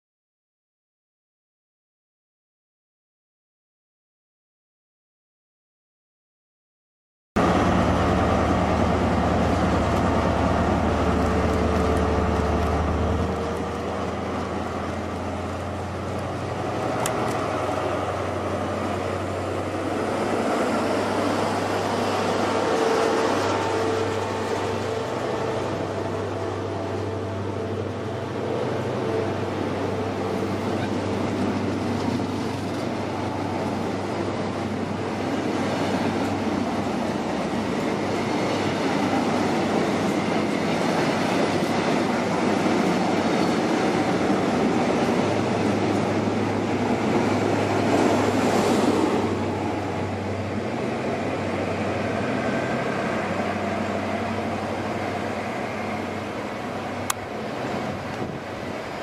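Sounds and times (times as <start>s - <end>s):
low diesel engine drone: 7.4s - 59.0s
train wheels rolling on rails: 7.4s - 59.0s.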